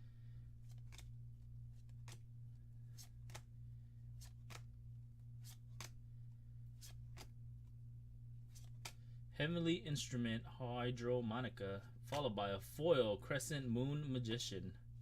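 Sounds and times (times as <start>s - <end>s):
cards snapping: 0.6s - 3.5s, 4.1s - 4.8s, 5.4s - 6.0s, 6.7s - 7.4s, 8.5s - 9.1s.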